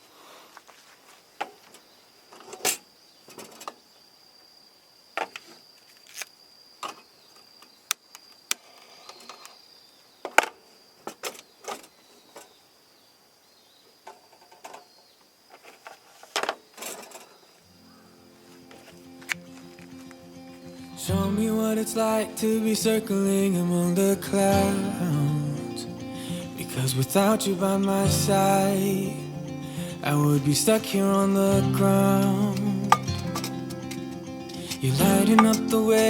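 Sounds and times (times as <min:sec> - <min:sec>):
high-pitched insect tone: 0:17.7 - 0:36.0.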